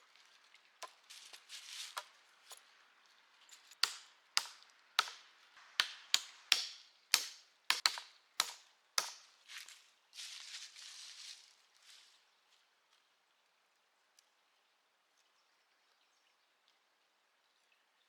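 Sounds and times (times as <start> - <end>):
wood chopping strikes: 1.9 - 2.6, 3.8 - 9.3
soft rustling: 9.5 - 12.6.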